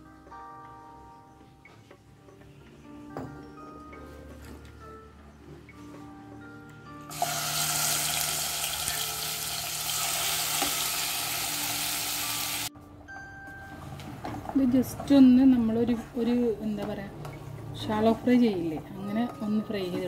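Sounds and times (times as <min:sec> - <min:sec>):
faint background music: 0:00.0 - 0:20.0
chicken sizzling in oil: 0:07.1 - 0:12.7.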